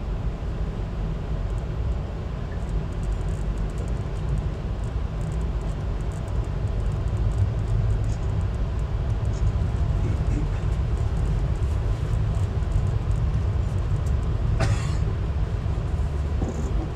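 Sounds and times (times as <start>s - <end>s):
passenger train rumble: 0.0s - 16.9s
faint light ticks: 1.4s - 1.7s, 2.5s - 14.4s.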